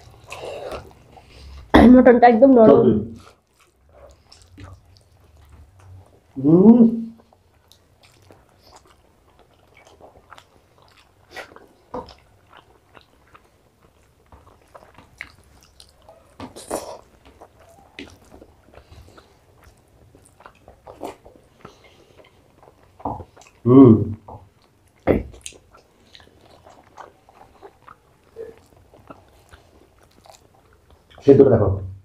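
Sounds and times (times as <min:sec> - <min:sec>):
chewing and mouth smacks: 0:00.0 - 0:01.7, 0:03.2 - 0:06.4, 0:07.2 - 0:23.6, 0:24.2 - 0:31.3.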